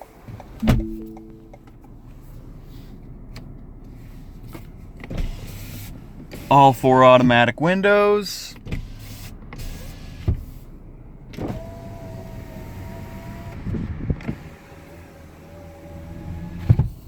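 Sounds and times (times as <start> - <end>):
power window motor whine: 11.4 - 16.9.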